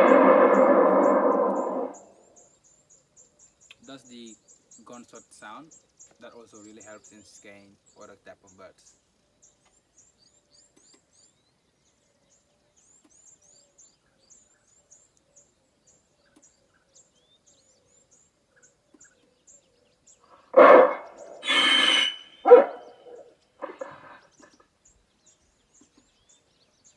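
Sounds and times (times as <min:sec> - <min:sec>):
loudspeaker scare sound: 0:00.0 - 0:02.0, 0:20.6 - 0:22.8
faint high chirps: 0:20.6 - 0:24.5.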